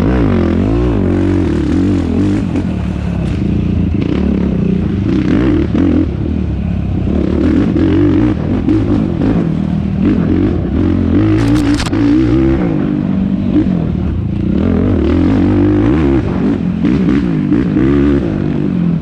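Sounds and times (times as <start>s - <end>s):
quad engine revving: 0.0s - 6.3s, 7.0s - 19.0s.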